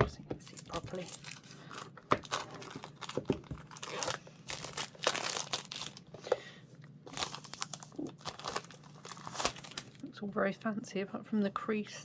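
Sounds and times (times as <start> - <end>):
plastic shrink wrap tearing: 0.6 - 6.0, 7.1 - 10.0.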